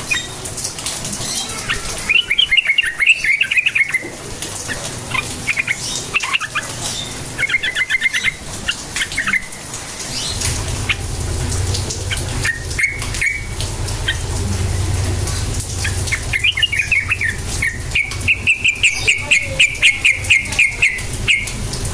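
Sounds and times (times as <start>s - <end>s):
bird chattering calls: 1.2s - 11.1s, 11.8s - 14.4s, 15.8s - 21.7s
low steady rumble: 9.5s - 21.9s.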